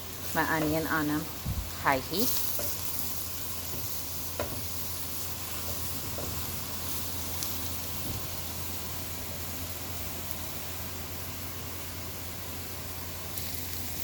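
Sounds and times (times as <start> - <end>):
onions sizzling in hot oil: 0.0 - 14.0.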